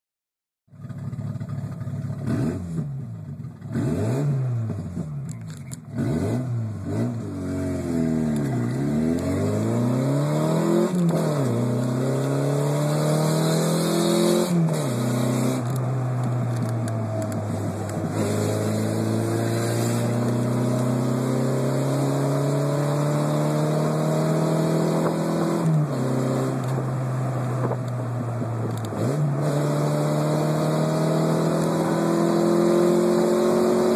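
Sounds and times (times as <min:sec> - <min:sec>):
loud car engine revving: 0:01.9 - 0:33.9
gear shifts: 0:14.7 - 0:21.0, 0:26.5 - 0:29.5.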